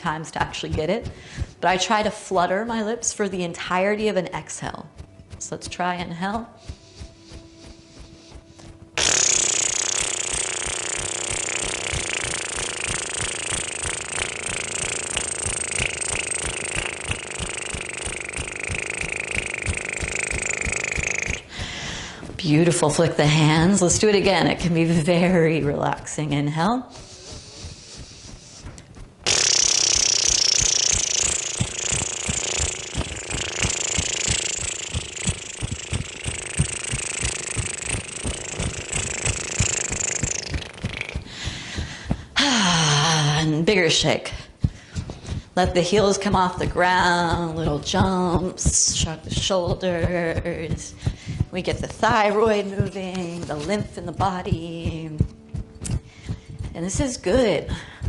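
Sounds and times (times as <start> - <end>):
quiet inhale: 1.1 - 1.6, 21.5 - 22.3
person lip trill: 6.4 - 22.4, 26.8 - 43.5, 54.9 - 56.7.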